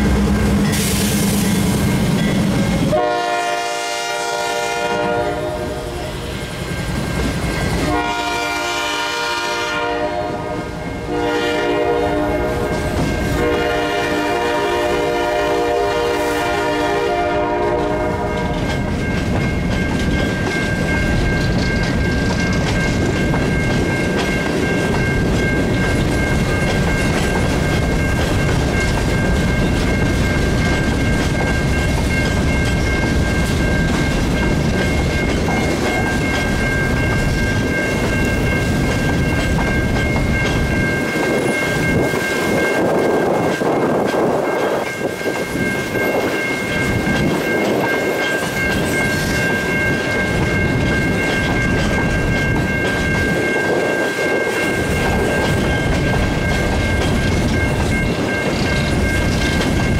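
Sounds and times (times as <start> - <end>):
locomotive horn blasts: 2.9 - 6.3, 7.8 - 18.6
train wheels clickety-clack: 10.4 - 59.9
steady high ringing tone: 18.5 - 59.9.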